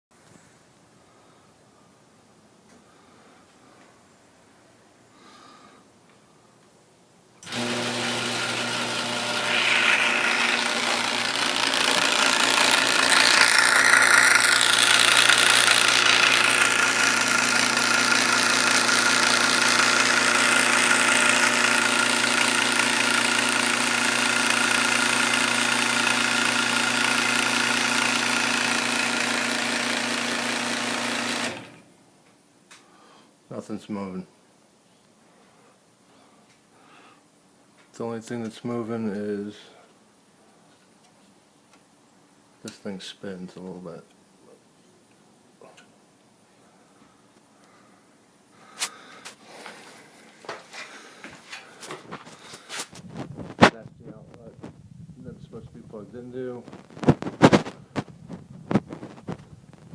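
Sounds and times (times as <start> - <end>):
garage door opener motor humming: 7.4 - 31.9.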